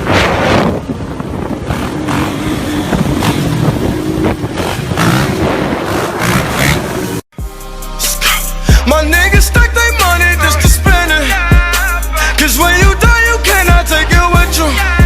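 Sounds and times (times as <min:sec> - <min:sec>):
dirt bike engines revving: 0:00.0 - 0:07.2.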